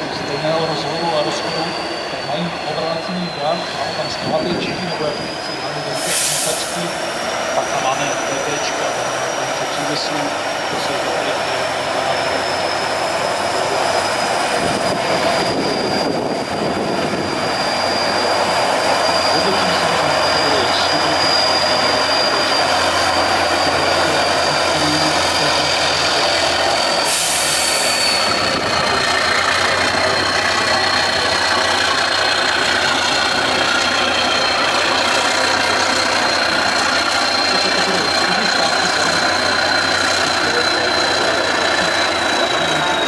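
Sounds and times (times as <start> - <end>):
truck diesel engine running: 0.0 - 43.0
high whistle: 0.2 - 7.0, 12.0 - 43.0
air hiss: 6.0 - 6.9, 27.0 - 28.4.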